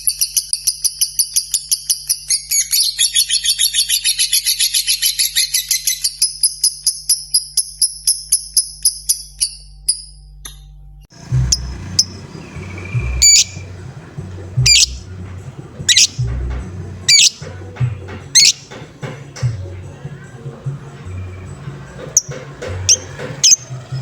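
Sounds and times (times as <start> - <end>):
low thumping rumbles: 11.1 - 24.0
lovebird ticking song: 11.2 - 24.0
sharp high bird chirps: 11.4 - 13.8, 14.6 - 15.1, 15.9 - 16.3, 17.1 - 17.5, 18.3 - 18.8, 22.9 - 23.6.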